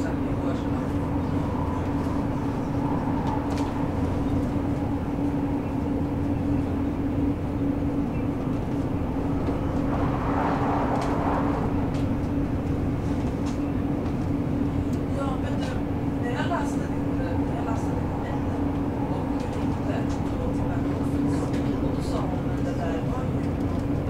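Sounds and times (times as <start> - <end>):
rushing noise: 0.0 - 14.6
train wheels rumbling on rail: 0.0 - 24.0.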